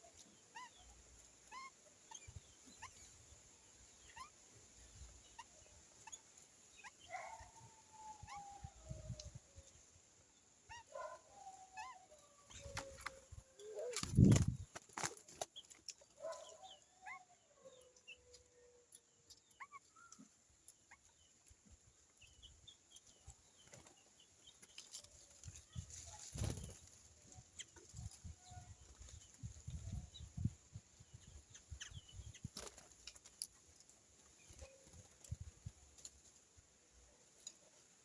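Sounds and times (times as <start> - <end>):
birds chirping: 0.0 - 36.4
wings fluttering: 12.4 - 16.5, 23.6 - 30.5, 32.1 - 36.4.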